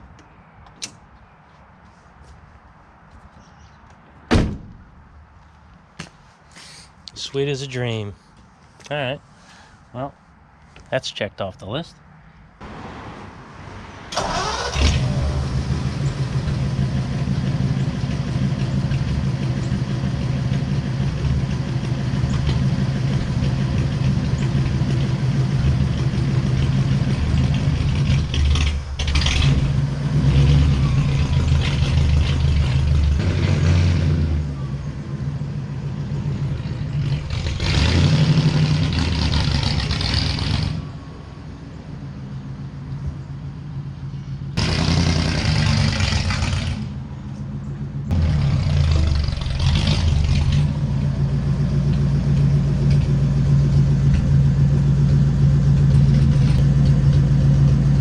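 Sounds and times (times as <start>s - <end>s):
car engine starting and revving: 12.6s - 41.1s, 44.6s - 47.2s, 48.0s - 58.0s.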